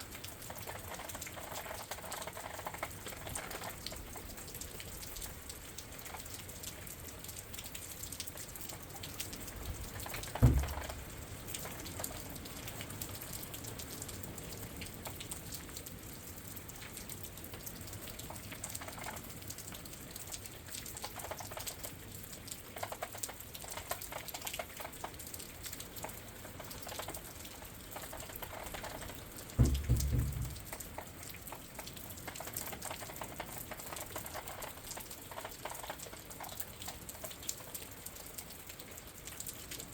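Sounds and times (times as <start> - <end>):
rain pattering on a window: 0.0 - 39.9
low thumps: 10.4 - 11.1, 29.6 - 30.8.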